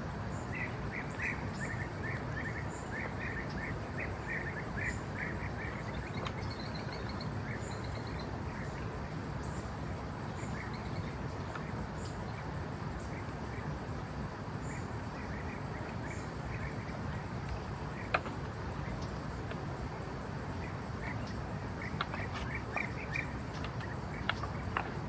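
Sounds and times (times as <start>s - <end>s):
steady background hiss: 0.0s - 25.0s
bird chirps: 0.6s - 8.7s, 20.6s - 24.9s.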